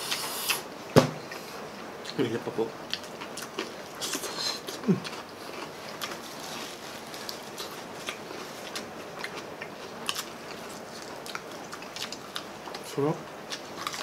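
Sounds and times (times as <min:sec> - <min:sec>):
chewing crispy fried chicken: 0:02.8 - 0:14.0.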